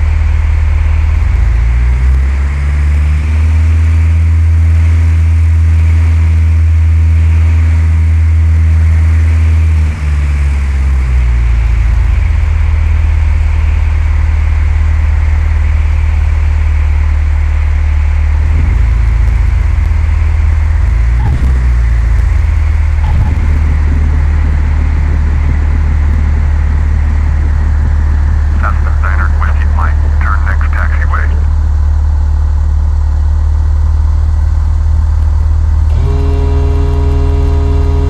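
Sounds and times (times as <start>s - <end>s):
aircraft piston engine running: 10.0s - 33.9s.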